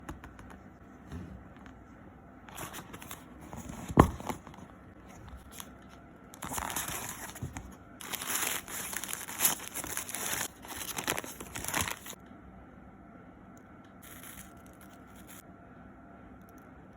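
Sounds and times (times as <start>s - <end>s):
paper packaging rustling: 2.5s - 12.2s, 14.0s - 15.4s.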